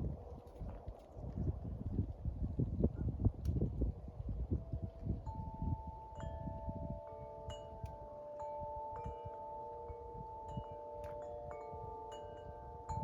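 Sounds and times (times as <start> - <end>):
wind rumbling on microphone: 0.0 - 13.0
wind chimes ringing: 4.6 - 13.0.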